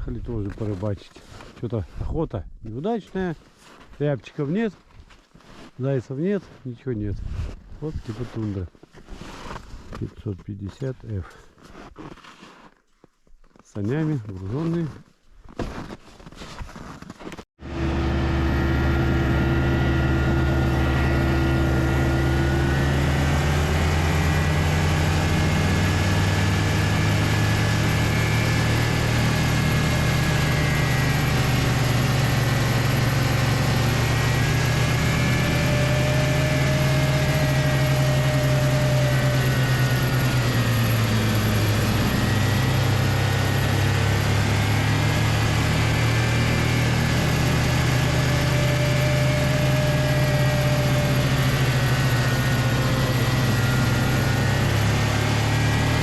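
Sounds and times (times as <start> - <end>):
snowmobile engine running: 17.6 - 56.0.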